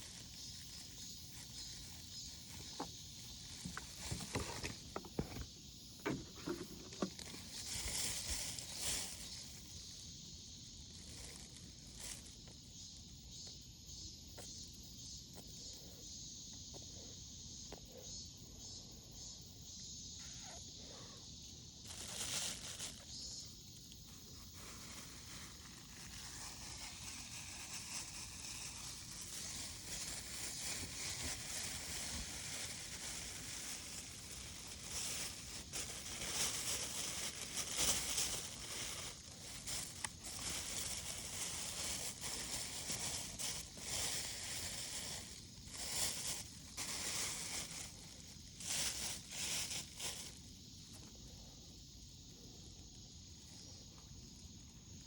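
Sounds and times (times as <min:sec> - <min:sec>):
rustling and crinkling: 0:00.0 - 0:10.0, 0:10.8 - 0:12.6, 0:21.8 - 0:51.2
insects chirring: 0:00.0 - 0:55.0.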